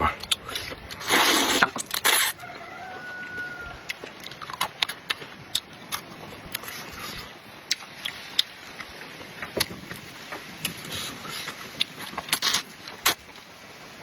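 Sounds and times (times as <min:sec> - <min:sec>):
chewing clicks and smacks: 0:00.2 - 0:00.8, 0:03.9 - 0:06.7, 0:07.7 - 0:08.9.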